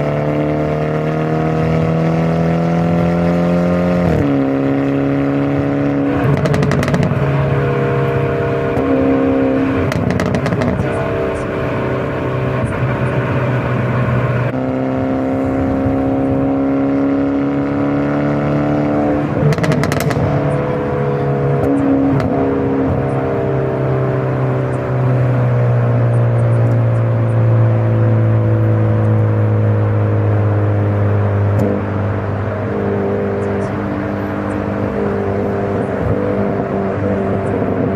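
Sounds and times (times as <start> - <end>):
car engine and exhaust running: 0.0 - 37.9
sharp exhaust pops: 6.2 - 7.2, 9.9 - 11.1, 19.4 - 20.5.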